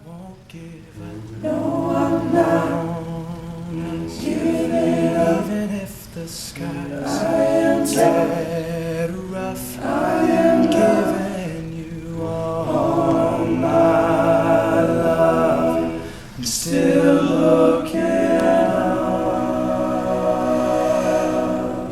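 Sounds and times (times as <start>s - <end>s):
male a cappella group singing: 0.0s - 21.9s.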